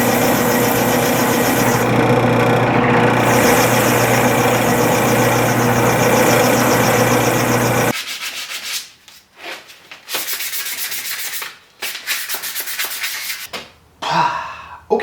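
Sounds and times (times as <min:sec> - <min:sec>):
power tool motor running: 0:00.0 - 0:07.9.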